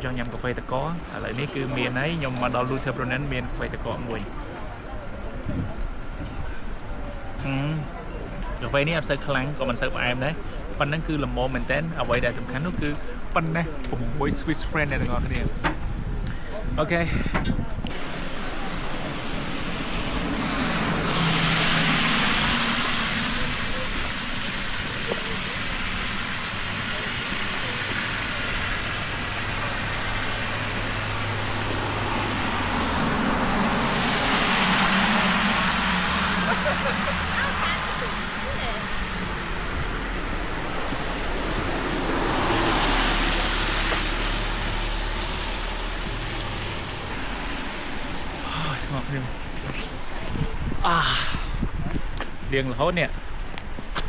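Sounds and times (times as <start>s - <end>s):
car tyres hissing on wet road: 17.9s - 51.4s.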